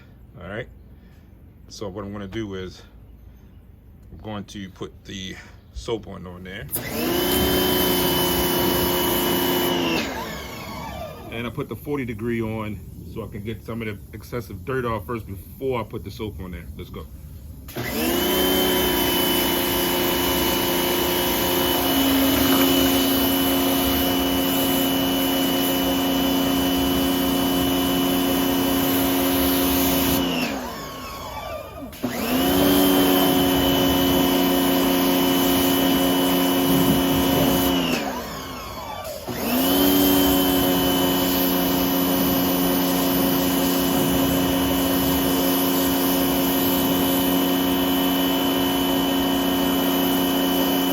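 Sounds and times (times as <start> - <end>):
pressure washer motor whine: 6.7 - 13.9, 17.7 - 50.9.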